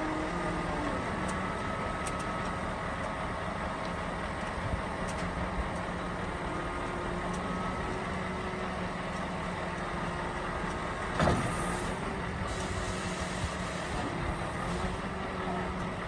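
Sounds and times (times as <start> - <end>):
heavy vehicle engine running: 0.0 - 16.0.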